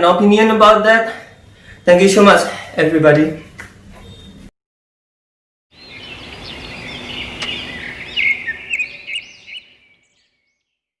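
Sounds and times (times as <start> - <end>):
birds chirping: 1.3 - 4.5, 5.7 - 10.9
outdoor background noise: 5.8 - 10.3.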